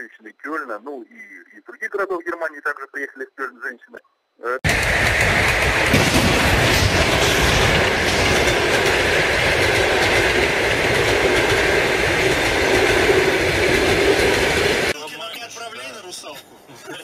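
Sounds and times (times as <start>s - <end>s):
train wheels on rails: 4.6s - 15.0s.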